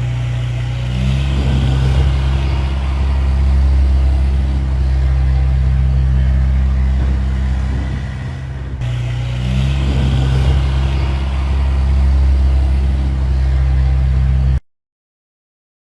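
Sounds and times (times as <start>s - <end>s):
tractor engine running: 0.0s - 14.6s.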